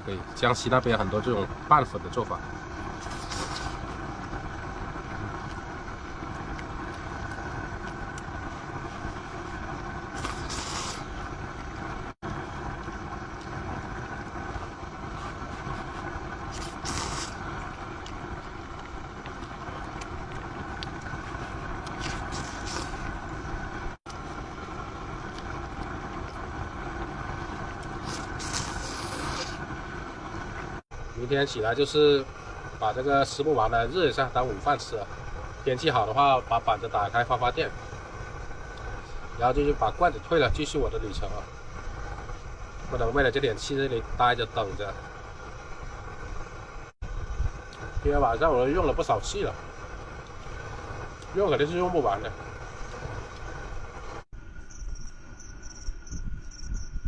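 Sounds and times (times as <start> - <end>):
gas burner hissing: 0.0 - 57.0
short sharp hiss: 3.0 - 3.8, 10.1 - 11.1, 15.2 - 17.5, 28.0 - 29.6.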